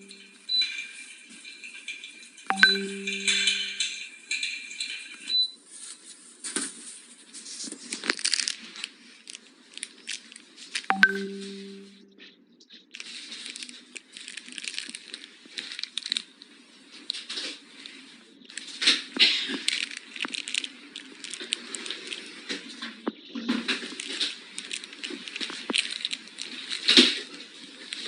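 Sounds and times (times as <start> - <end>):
short electronic beep: 0.0 - 0.6, 2.5 - 3.9, 10.9 - 12.2.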